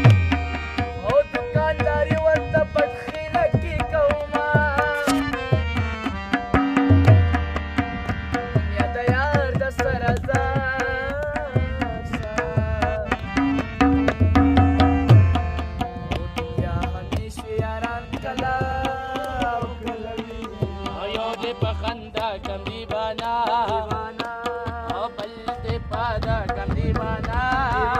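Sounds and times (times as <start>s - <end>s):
drum beats: 0.0s - 0.9s, 4.5s - 8.0s, 13.4s - 16.1s.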